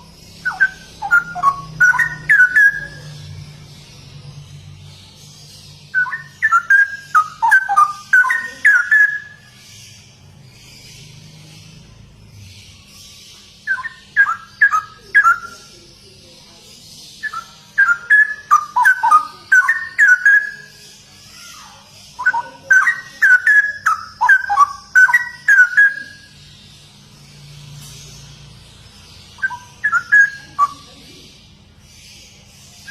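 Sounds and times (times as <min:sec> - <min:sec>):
bird singing fluty phrases: 0:00.0 - 0:32.9.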